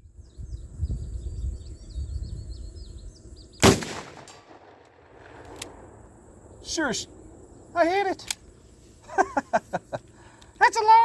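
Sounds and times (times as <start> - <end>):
birds chirping: 0.1 - 4.1, 5.2 - 11.0
shotgun shot: 3.6 - 5.8.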